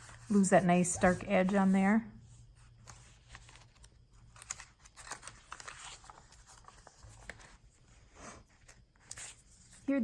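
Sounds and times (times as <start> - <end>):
paper rustling: 0.0 - 10.0.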